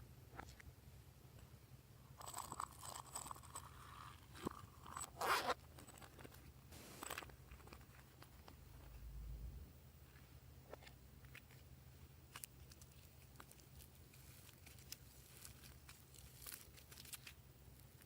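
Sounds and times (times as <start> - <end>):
slime squelching and crackling: 12.3 - 18.0.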